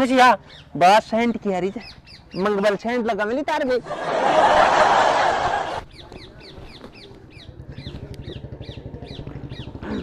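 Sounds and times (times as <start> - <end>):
bird chirping: 0.0 - 3.2, 5.8 - 10.0
loud rush of noise: 3.9 - 5.8.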